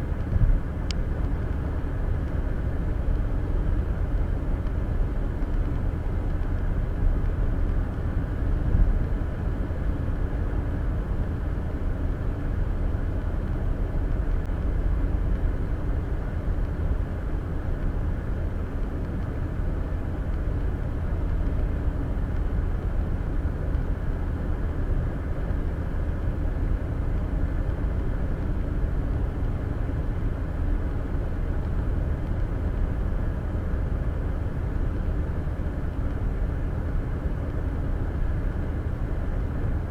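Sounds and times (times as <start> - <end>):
road and tyre noise: 0.0 - 39.9.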